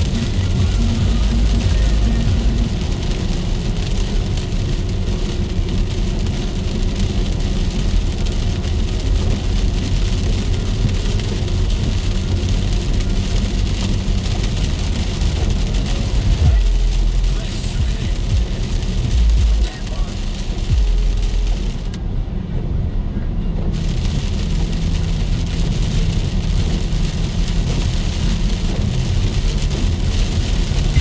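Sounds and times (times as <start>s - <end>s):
heavy rain falling: 0.0s - 22.0s, 23.6s - 31.0s.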